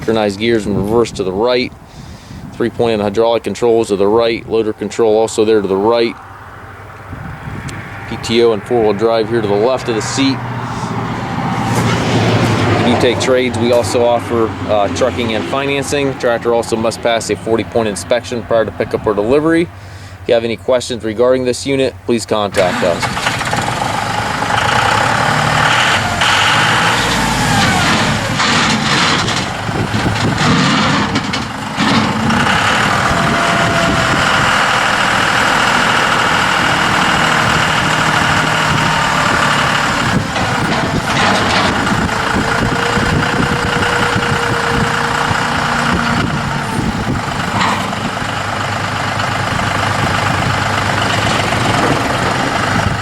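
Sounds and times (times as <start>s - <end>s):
tractor diesel engine running: 0.0s - 53.0s
short clunks: 25.2s - 34.7s, 36.9s - 48.4s.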